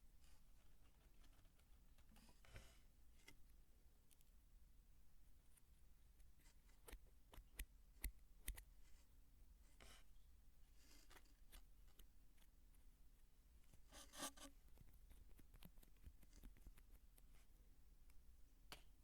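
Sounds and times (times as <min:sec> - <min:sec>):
light scratching on soap: 0:08.4 - 0:12.6, 0:13.6 - 0:17.6.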